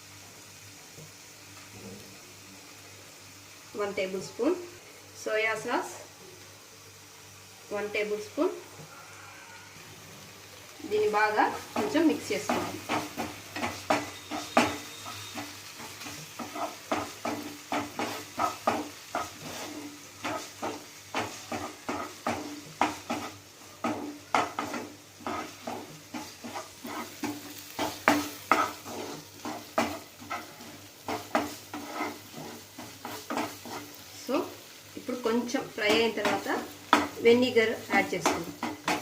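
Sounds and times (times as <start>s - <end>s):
food sizzling in a pan: 0.0s - 39.0s
utensil scraping a pan: 11.8s - 34.0s.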